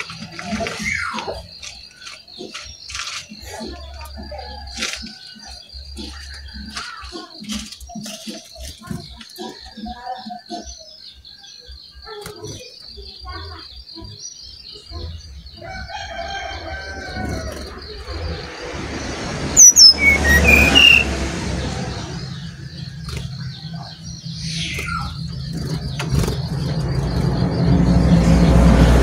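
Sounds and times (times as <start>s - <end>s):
bird chirps: 0.0s - 29.0s
low rumble: 17.2s - 29.0s
high pulsing tone: 17.6s - 23.0s.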